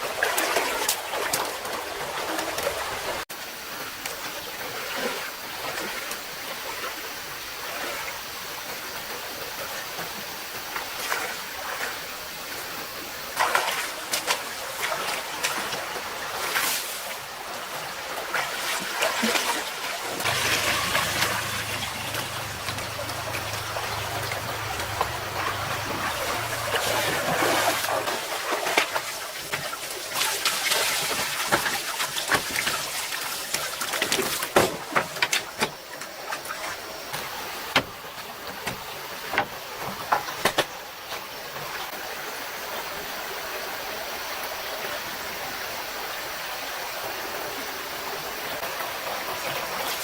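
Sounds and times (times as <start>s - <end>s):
water splashes: 0.0s - 3.2s, 13.2s - 38.4s
stream running: 0.0s - 50.0s
low steady hum: 20.2s - 28.3s.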